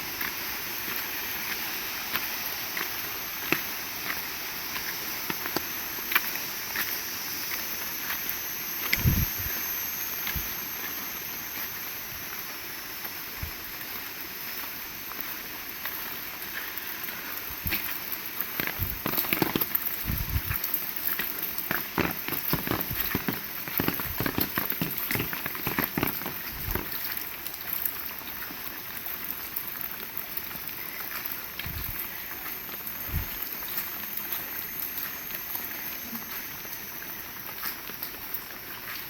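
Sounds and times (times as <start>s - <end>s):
heavy rain falling: 13.5s - 39.0s.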